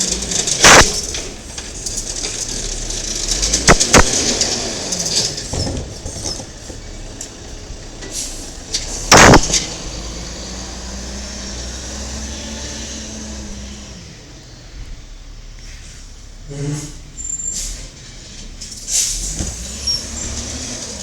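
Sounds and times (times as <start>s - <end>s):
diesel truck engine running: 0.0s - 21.0s
short loud burst: 0.6s - 1.2s, 9.1s - 10.1s.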